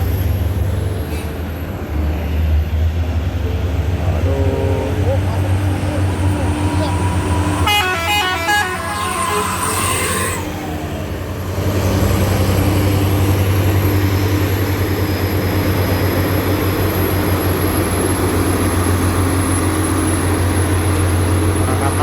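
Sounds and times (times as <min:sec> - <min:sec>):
truck diesel engine drone: 0:00.0 - 0:22.0.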